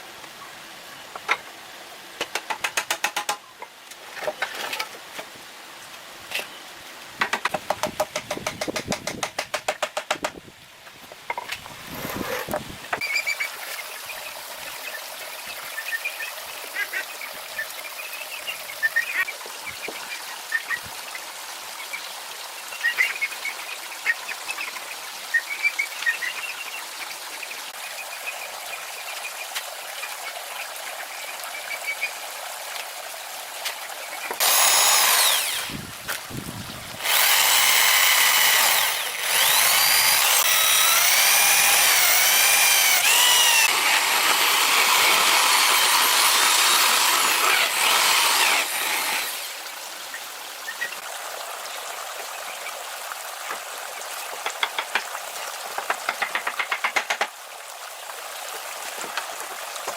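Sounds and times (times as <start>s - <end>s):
steady outdoor hiss: 0.0s - 59.9s
power tool whining: 34.4s - 35.9s, 36.8s - 49.6s.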